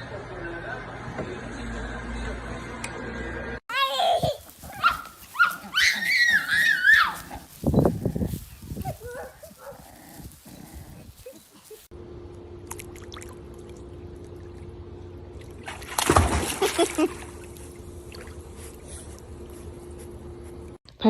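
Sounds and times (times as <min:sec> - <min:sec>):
steady low hum: 0:07.2 - 0:20.8
loud water splash: 0:15.6 - 0:17.4.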